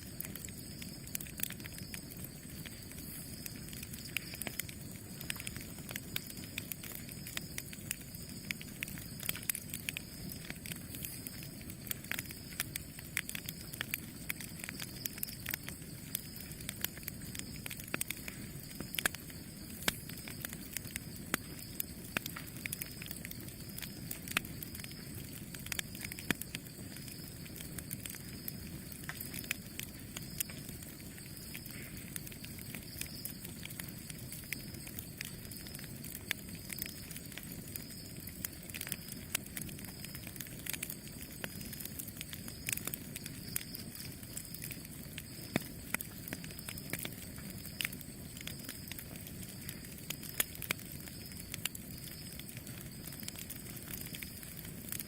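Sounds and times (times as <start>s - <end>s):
campfire crackling and popping: 0.0s - 55.0s
low rumble of flames: 0.0s - 55.0s.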